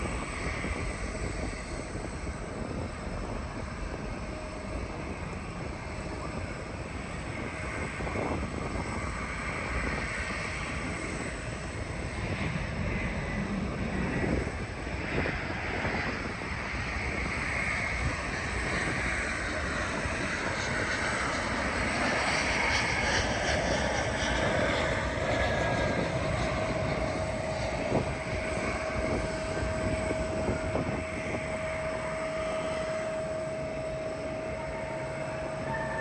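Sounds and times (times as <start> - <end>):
jet engine roar: 0.0 - 36.0
whining tone: 17.8 - 36.0.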